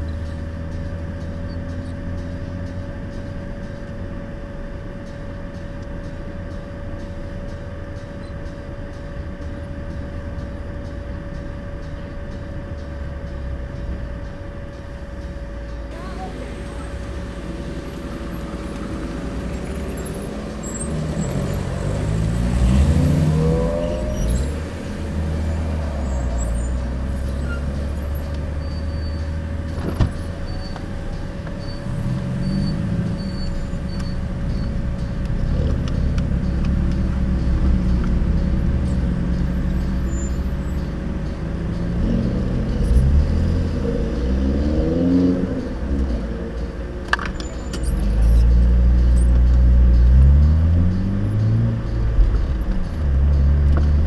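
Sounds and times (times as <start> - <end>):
car engine accelerating: 15.9 - 54.0.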